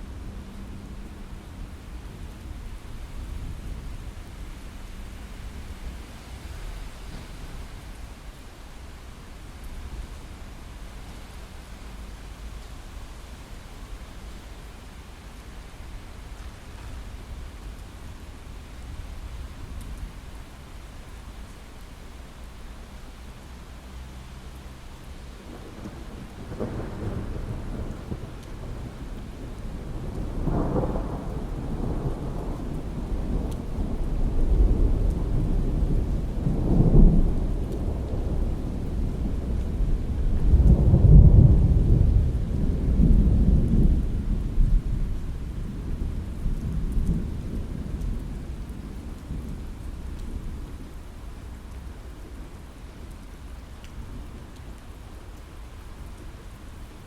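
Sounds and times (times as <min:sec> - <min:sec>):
heavy rain on a window: 0:00.0 - 0:57.0
thunder rumbling: 0:25.4 - 0:52.5.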